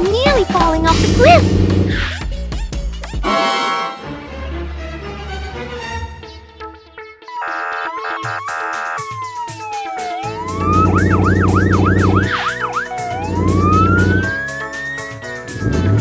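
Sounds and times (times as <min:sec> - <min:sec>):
background music: 0:00.0 - 0:16.0
emergency vehicle siren wailing: 0:07.3 - 0:16.0.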